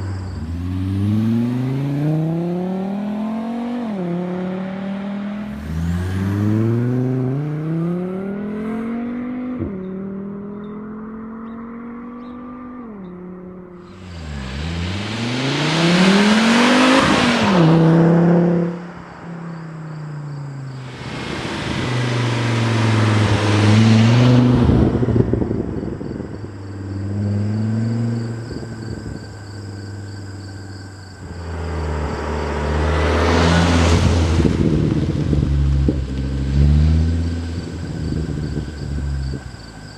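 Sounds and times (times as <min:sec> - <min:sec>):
car engine accelerating: 0:00.0 - 0:39.9
loud rushing noise: 0:20.8 - 0:25.5.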